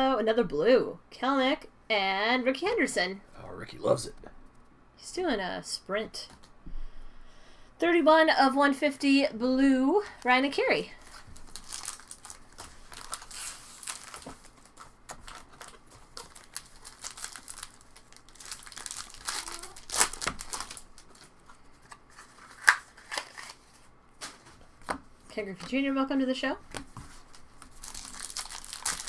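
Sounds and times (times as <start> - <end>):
card pack wrappers crinkling: 10.1 - 25.0, 26.7 - 29.0
cards being handled: 18.4 - 25.1.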